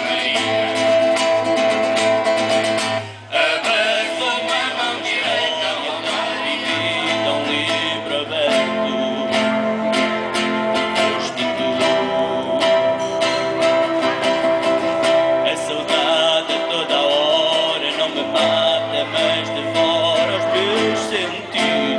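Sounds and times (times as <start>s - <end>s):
guitar plucked and strummed: 0.0s - 21.9s
steady held tone: 2.9s - 15.0s.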